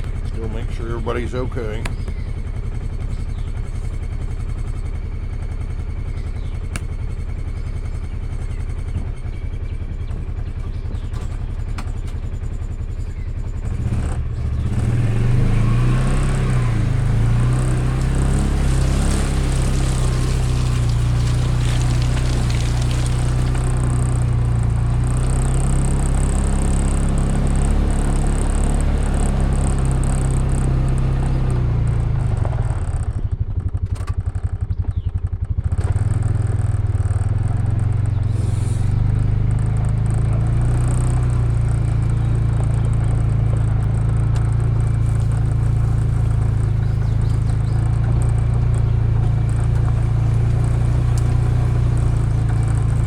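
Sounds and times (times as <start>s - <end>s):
vehicle engine running: 0.0s - 53.0s.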